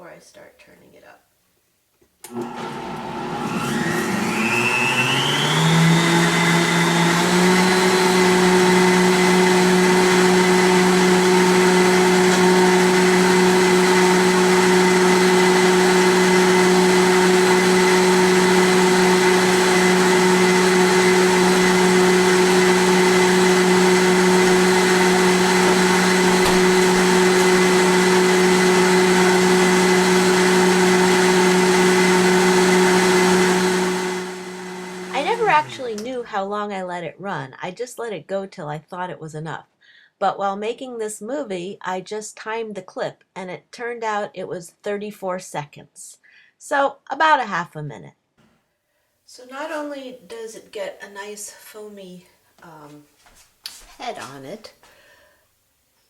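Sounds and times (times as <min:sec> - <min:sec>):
blender motor running: 0:02.3 - 0:36.2.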